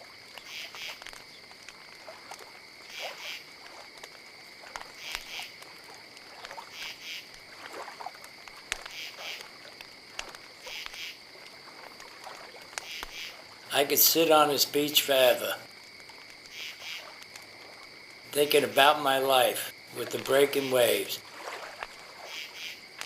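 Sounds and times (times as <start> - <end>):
faint clicks: 0.0 - 13.6, 15.6 - 18.2
insects chirping: 0.0 - 23.0.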